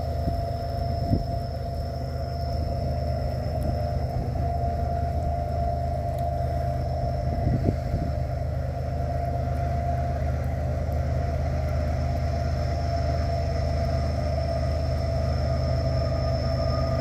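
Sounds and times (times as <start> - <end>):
diesel locomotives rumbling: 0.0 - 17.0
whining tones: 0.0 - 17.0.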